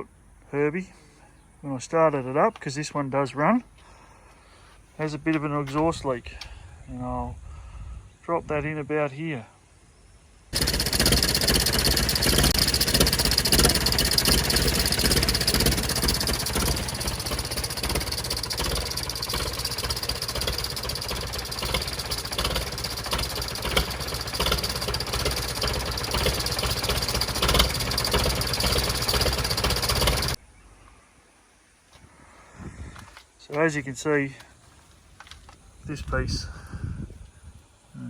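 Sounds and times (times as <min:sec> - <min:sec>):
tractor engine idling: 0:10.6 - 0:30.4.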